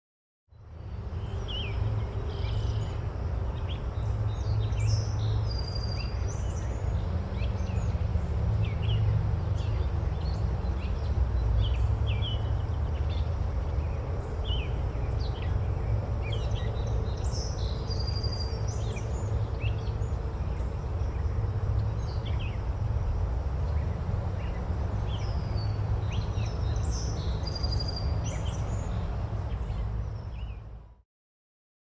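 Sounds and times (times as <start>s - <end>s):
small birds chirping: 8.6s - 30.6s.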